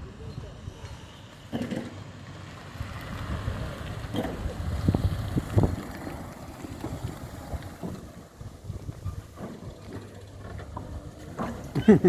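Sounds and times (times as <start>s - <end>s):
wind buffeting microphone: 2.6s - 11.2s.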